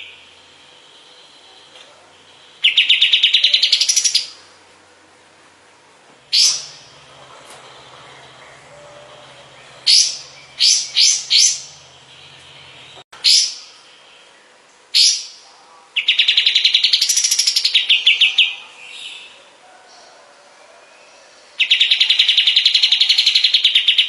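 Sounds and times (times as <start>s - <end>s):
songbird whistled notes: 6.3s - 6.9s, 8.8s - 13.7s
fast bird trill: 6.3s - 7.1s, 8.2s - 13.7s.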